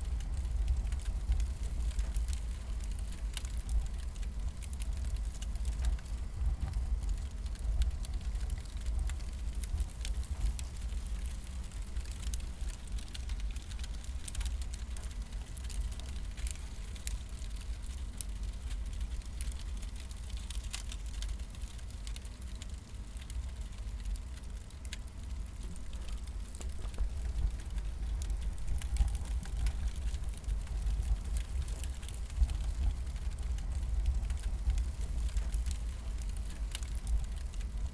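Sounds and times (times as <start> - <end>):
wood fire crackling: 0.0 - 37.9
sharp pops of fire: 22.7 - 37.8
low rumble: 25.2 - 37.9.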